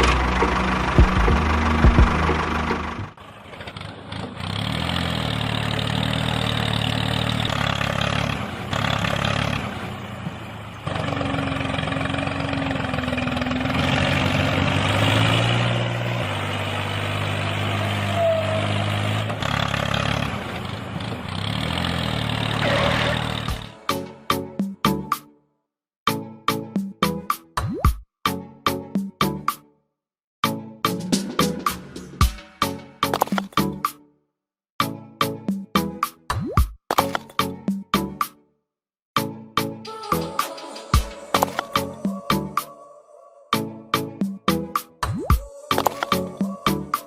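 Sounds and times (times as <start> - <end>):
engine droning: 0.0 - 24.3, 45.4 - 47.0.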